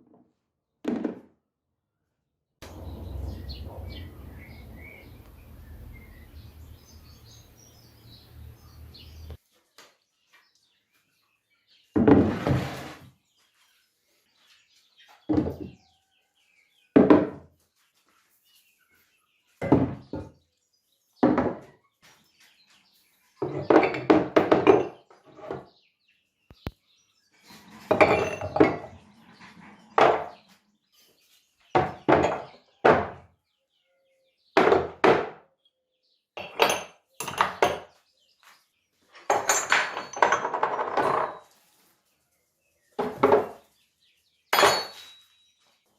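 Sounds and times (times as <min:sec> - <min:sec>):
metal tools clinking: 0:39.3 - 0:41.4, 0:44.6 - 0:45.2.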